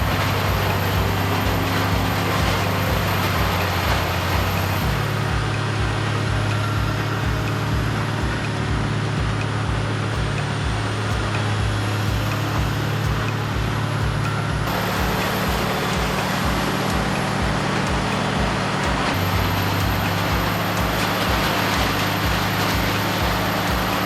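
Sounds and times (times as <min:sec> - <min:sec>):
diesel grinder rumbling: 0:00.0 - 0:24.0.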